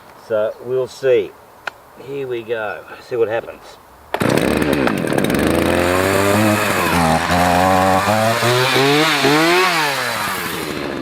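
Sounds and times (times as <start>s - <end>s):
chainsaw engine revving: 4.1s - 11.0s.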